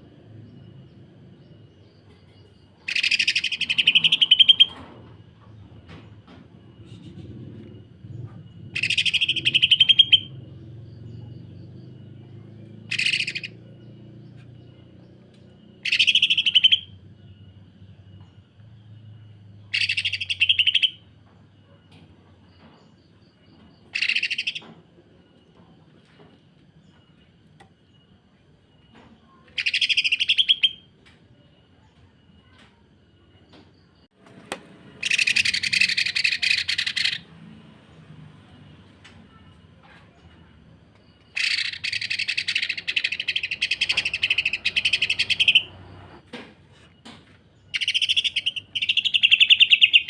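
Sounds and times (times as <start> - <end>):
bird rapid rattling song: 1.9 - 17.5, 19.6 - 21.2, 22.8 - 24.8, 29.3 - 30.9, 34.9 - 37.4, 41.0 - 46.2, 47.5 - 50.0.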